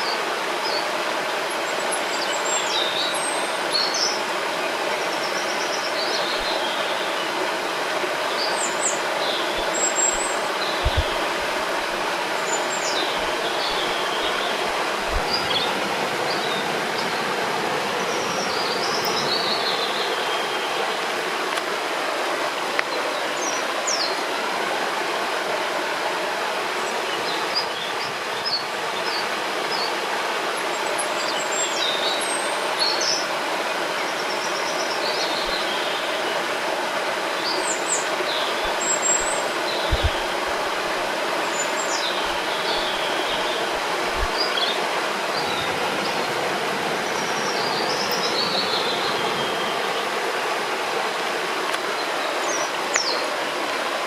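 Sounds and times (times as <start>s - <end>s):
river rushing: 0.0s - 54.0s
songbirds chirping and whistling: 8.3s - 17.2s, 37.3s - 44.8s.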